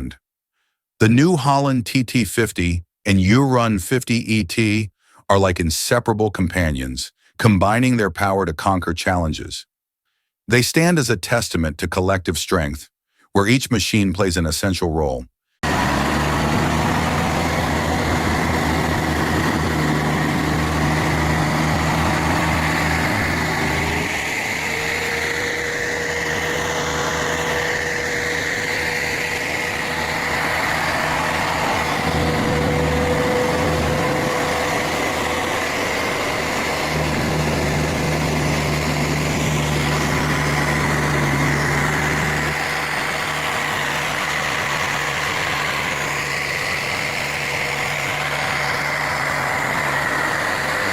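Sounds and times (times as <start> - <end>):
heavy vehicle engine running: 15.6 - 50.9
high-pitched whine: 15.6 - 50.9
lower whine: 15.6 - 50.9.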